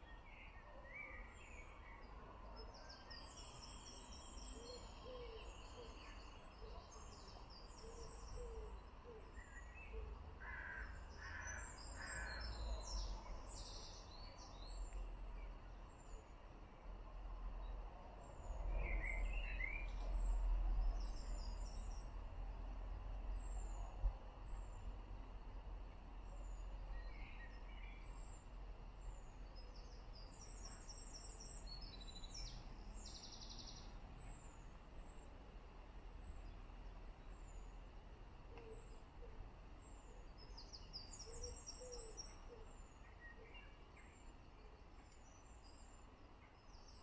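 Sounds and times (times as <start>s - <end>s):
bird chirping: 26.3s - 35.2s, 38.5s - 47.0s.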